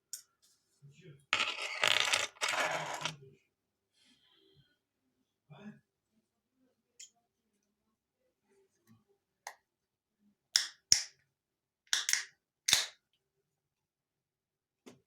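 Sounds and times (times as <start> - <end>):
sharp snaps: 10.6 - 11.2, 11.9 - 13.0.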